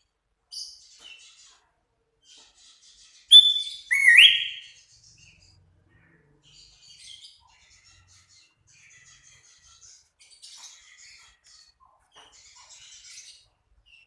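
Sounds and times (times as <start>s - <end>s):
bird chattering notes: 3.3s - 4.7s
loud whistled bird notes: 3.3s - 4.8s.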